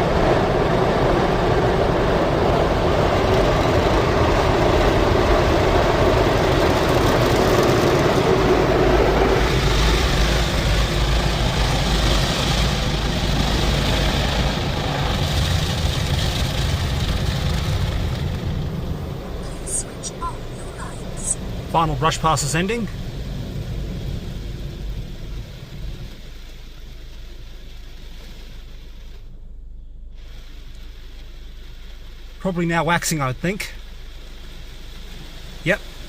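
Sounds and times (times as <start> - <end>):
car wash brushes scrubbing car: 0.0 - 29.2
high hiss: 18.8 - 29.5, 30.1 - 36.0.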